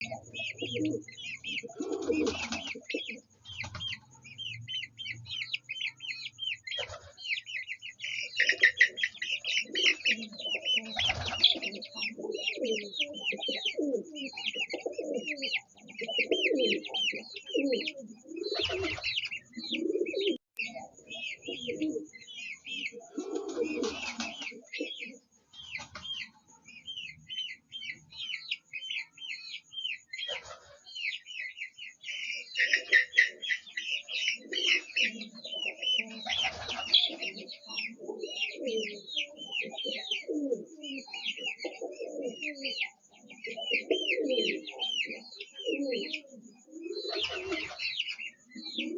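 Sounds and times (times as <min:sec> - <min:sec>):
hen clucking: 0:00.0 - 0:04.1
baby chicks peeping: 0:00.0 - 0:48.9.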